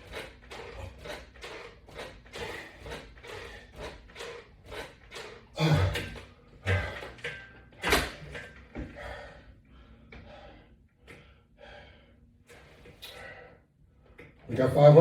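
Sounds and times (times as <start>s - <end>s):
man breathing hard: 5.6s - 7.2s, 8.8s - 13.8s.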